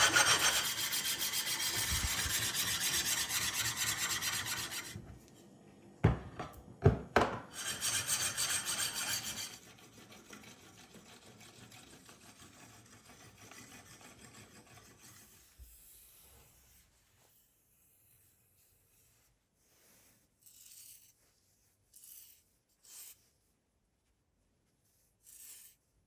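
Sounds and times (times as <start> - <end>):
sharpening stone rasping on knife: 0.0 - 4.9, 7.6 - 15.3.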